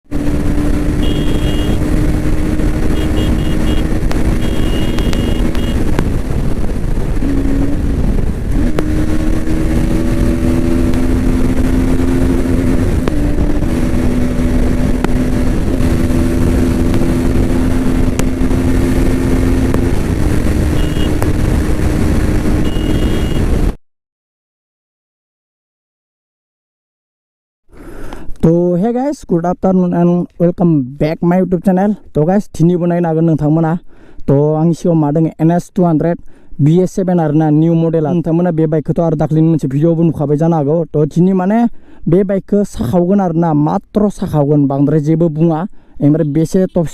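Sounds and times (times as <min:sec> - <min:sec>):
motorcycle engine running: 0:00.1 - 0:23.7
heavy rushing noise: 0:00.1 - 0:23.8.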